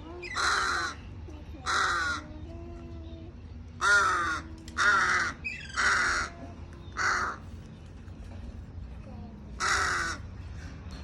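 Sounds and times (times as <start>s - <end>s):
crow cawing: 0.4s - 1.0s, 3.8s - 6.3s, 7.0s - 7.4s, 9.6s - 10.2s.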